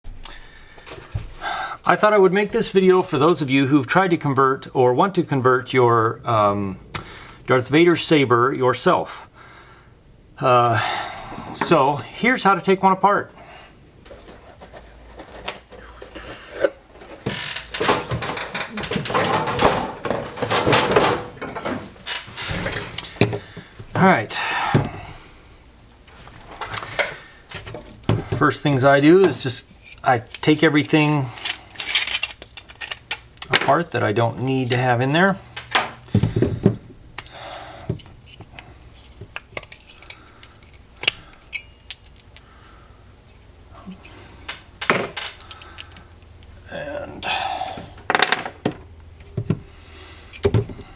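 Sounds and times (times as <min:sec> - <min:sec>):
clicks knocks and scraping of metal hilt: 0:16.2 - 0:23.5, 0:29.2 - 0:33.8.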